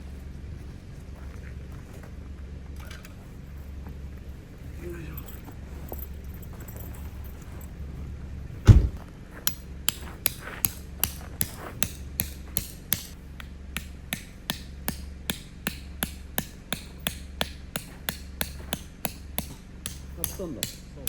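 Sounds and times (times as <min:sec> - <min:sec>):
heavy thud: 0:08.6 - 0:09.1
hammer striking tent stake: 0:09.5 - 0:21.0.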